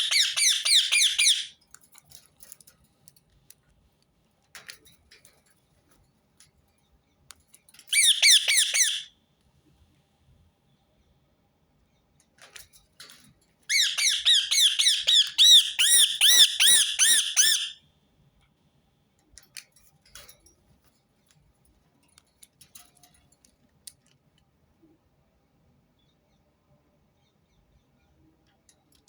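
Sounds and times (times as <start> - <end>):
parakeet screeching: 0.0 - 1.5, 8.0 - 9.1, 13.7 - 17.8.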